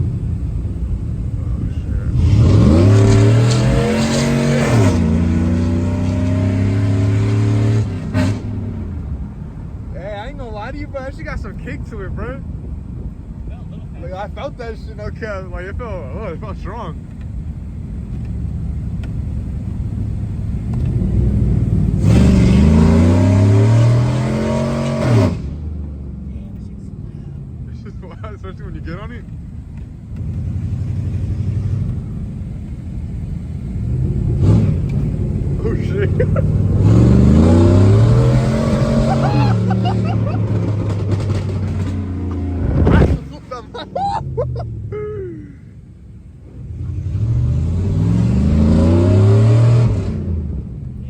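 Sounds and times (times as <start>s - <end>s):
engine accelerating hard: 0.0s - 11.5s, 19.6s - 25.6s, 30.2s - 45.0s, 46.3s - 51.0s.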